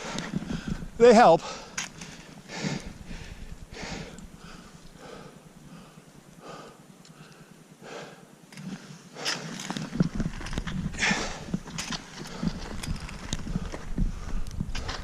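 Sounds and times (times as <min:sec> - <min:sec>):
person breathing hard: 0:01.4 - 0:09.5, 0:10.9 - 0:11.6.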